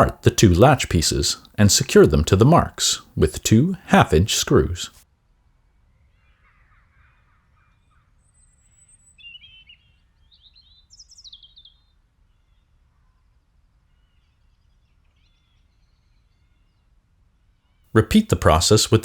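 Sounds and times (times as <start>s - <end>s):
birds chirping faintly: 0.0s - 4.9s
low background noise: 0.0s - 5.0s, 18.0s - 19.0s.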